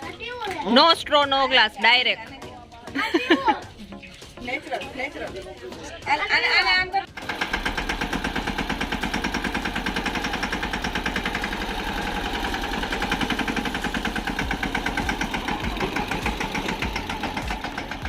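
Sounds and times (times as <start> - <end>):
engine chugging steadily: 7.1 - 18.0.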